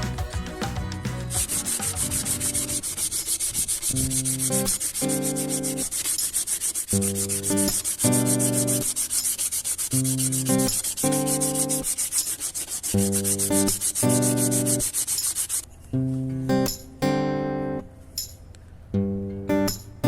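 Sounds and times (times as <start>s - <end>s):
sandpaper rubbing on wood: 1.3s - 15.7s.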